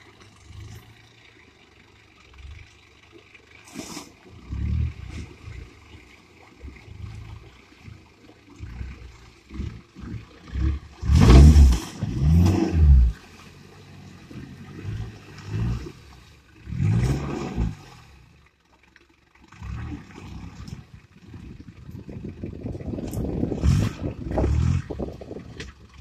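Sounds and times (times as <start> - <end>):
engine revving: 3.6 - 18.4, 19.5 - 21.6, 22.9 - 25.2.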